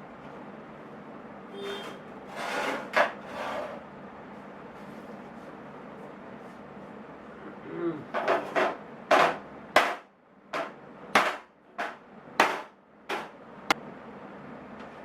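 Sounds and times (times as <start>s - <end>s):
hammer knocking on metal toolbox: 8.2s - 10.0s, 10.6s - 13.3s.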